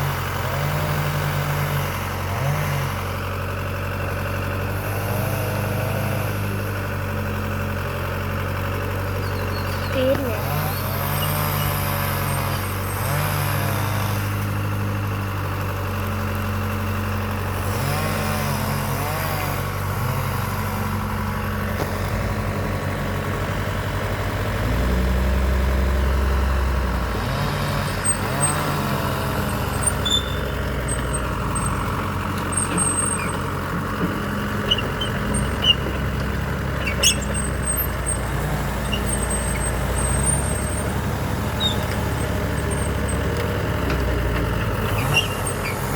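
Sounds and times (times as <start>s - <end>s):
diesel engine revving under load: 0.0s - 45.9s
high squeaks: 9.2s - 13.2s, 27.8s - 43.6s, 44.2s - 45.9s.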